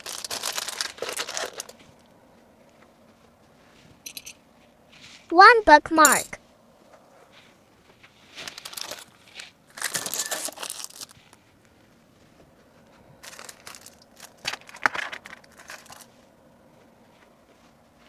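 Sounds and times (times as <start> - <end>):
plastic packaging crinkling: 0.0 - 1.7, 8.5 - 9.1, 9.7 - 11.2, 13.3 - 15.9.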